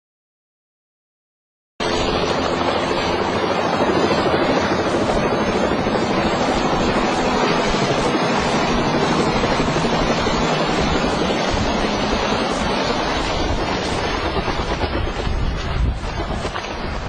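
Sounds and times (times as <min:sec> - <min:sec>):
helicopter running: 0:01.8 - 0:17.0.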